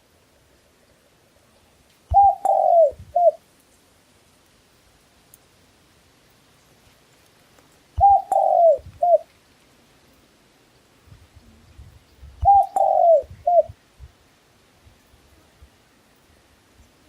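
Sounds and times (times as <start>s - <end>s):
dove cooing: 2.1s - 3.4s, 8.0s - 9.3s, 12.4s - 13.8s.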